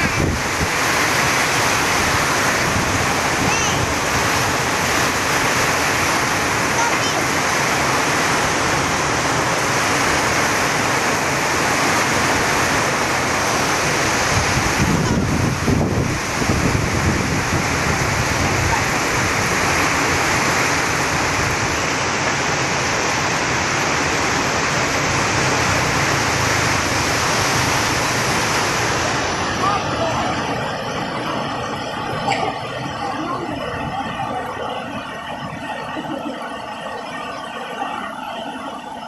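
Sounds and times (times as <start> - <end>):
low rumbling surge: 0.0 - 6.7
heavy rain pouring: 0.0 - 39.0.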